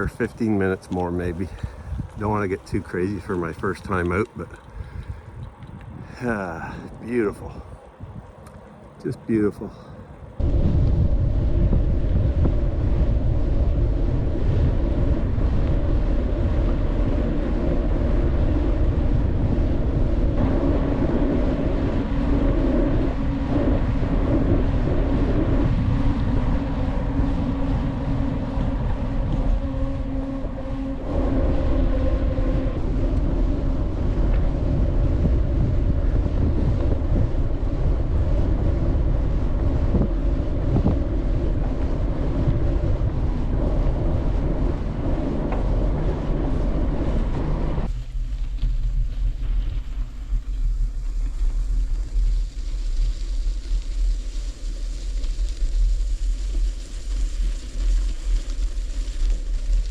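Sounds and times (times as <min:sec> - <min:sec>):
wind buffeting microphone: 0:00.0 - 0:59.9
tyre hum: 0:11.4 - 0:59.9.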